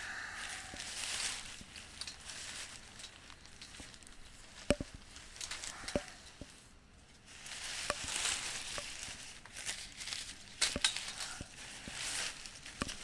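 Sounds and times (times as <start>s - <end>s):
canopy fabric rustling and crinkling: 0.3s - 13.0s
metallic clinks of frame tubing: 1.7s - 6.5s.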